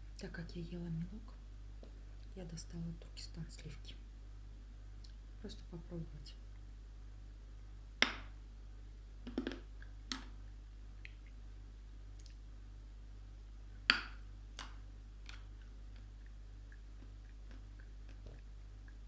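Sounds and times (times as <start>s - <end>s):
chalk snapping: 13.9s - 16.1s.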